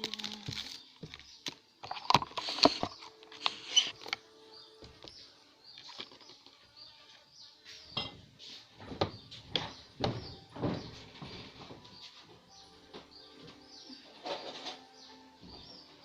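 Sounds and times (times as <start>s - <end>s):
plastic packaging crinkling: 0.0s - 4.0s.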